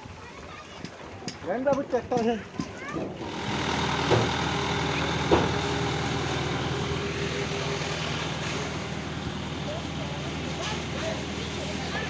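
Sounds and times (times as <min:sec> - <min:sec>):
heavy vehicle engine idling: 0:03.2 - 0:12.0.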